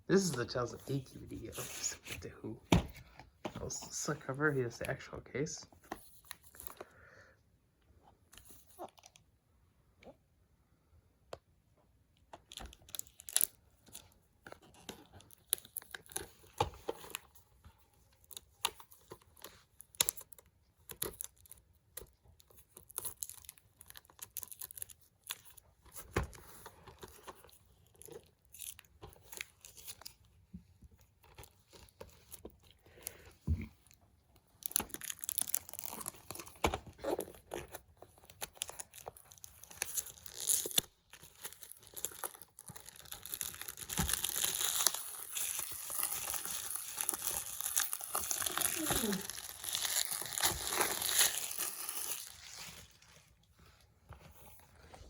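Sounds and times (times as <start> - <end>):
plastic wrap tearing and crinkling: 12.6 - 13.6, 18.2 - 30.1, 34.6 - 53.4.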